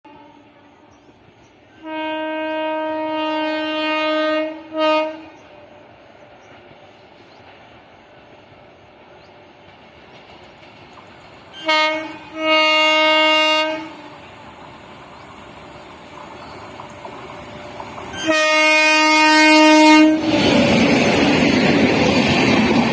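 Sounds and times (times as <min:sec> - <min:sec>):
train rumble: 0:00.1 - 0:22.9
locomotive horn blasts: 0:01.8 - 0:05.5, 0:11.6 - 0:14.1, 0:18.2 - 0:20.4.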